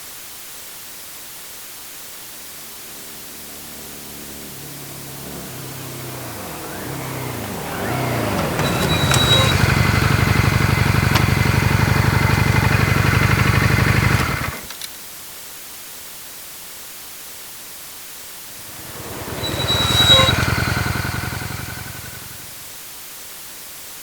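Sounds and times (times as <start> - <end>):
motorcycle engine running: 2.6 - 14.7, 18.6 - 22.7.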